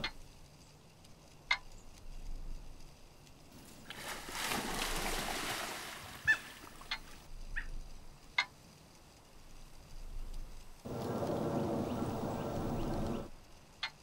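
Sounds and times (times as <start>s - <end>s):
hissing noise: 10.9s - 13.4s.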